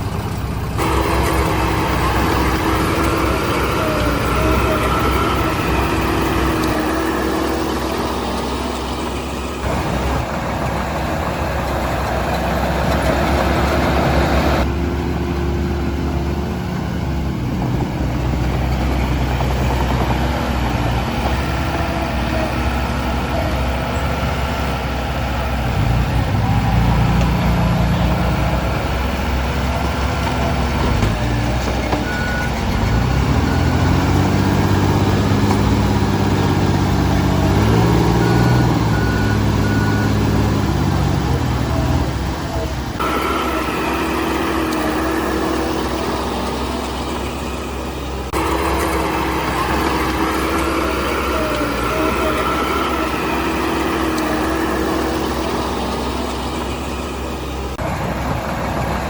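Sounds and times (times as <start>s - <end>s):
diesel machinery engine revving: 0.0s - 59.0s
reversing beeps: 31.7s - 35.3s, 37.3s - 40.5s.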